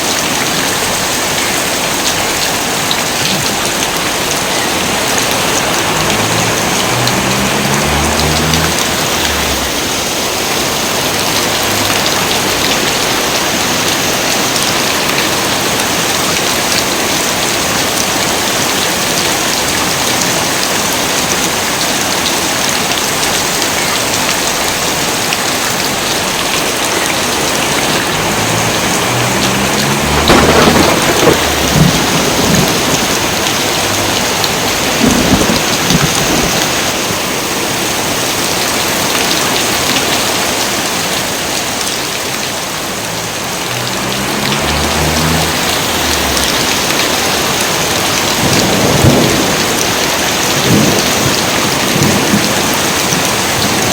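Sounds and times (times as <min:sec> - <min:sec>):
heavy rain pouring: 0:00.0 - 0:53.9
thunder rumbling: 0:03.0 - 0:14.0, 0:27.1 - 0:37.2, 0:43.1 - 0:53.7.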